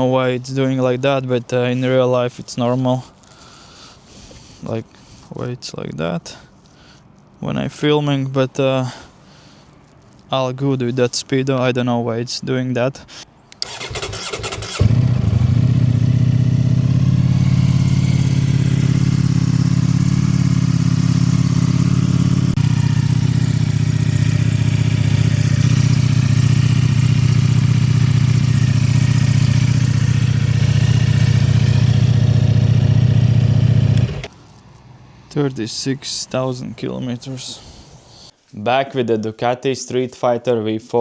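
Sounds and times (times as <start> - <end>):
motorcycle starter cranking: 13.6 - 15.7, 22.7 - 34.3
motorcycle engine running: 13.7 - 34.3.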